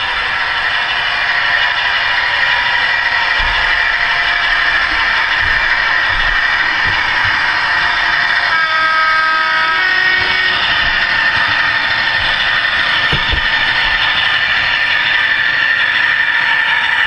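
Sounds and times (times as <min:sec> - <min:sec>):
model train engine sound: 0:00.0 - 0:17.0
low knock: 0:03.2 - 0:08.5, 0:10.1 - 0:14.8.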